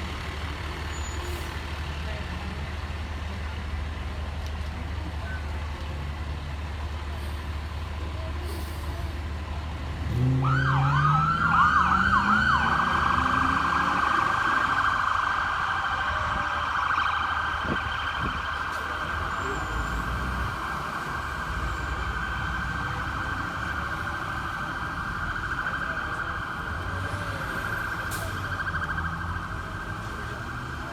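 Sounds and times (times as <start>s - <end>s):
engine note rising: 10.0s - 15.1s
siren wailing: 10.2s - 19.6s, 20.8s - 30.9s.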